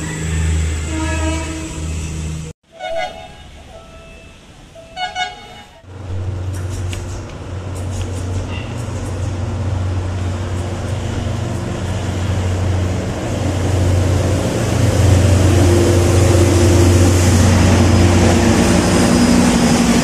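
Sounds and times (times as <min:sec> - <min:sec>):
train horn toots: 0:00.0 - 0:02.1, 0:02.7 - 0:05.9
diesel train running: 0:00.0 - 0:20.0.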